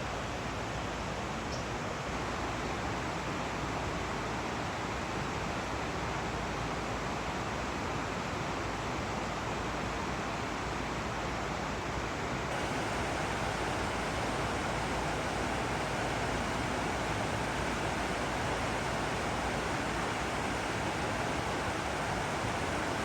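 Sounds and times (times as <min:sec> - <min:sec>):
water rushing: 0:12.5 - 0:23.0.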